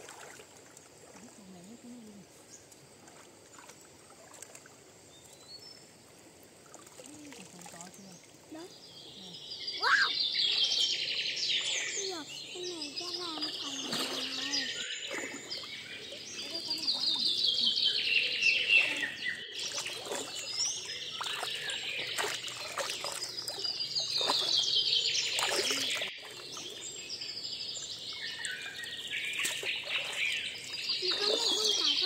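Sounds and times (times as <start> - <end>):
songbird trilling: 8.0 - 32.0.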